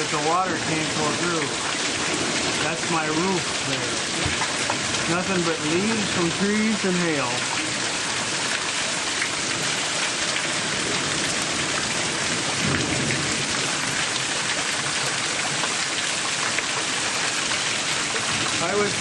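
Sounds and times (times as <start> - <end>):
heavy rain pouring: 0.0 - 19.0
low thunder rumble: 10.6 - 14.4.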